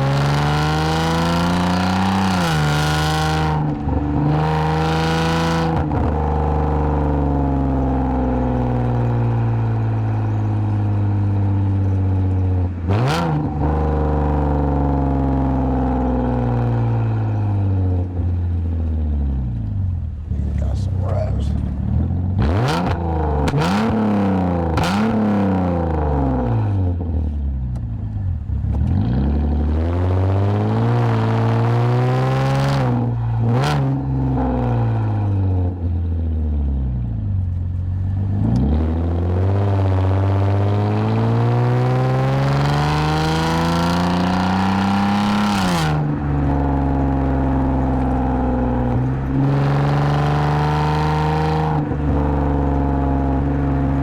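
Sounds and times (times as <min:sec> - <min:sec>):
car engine revving: 0:18.8 - 0:26.8.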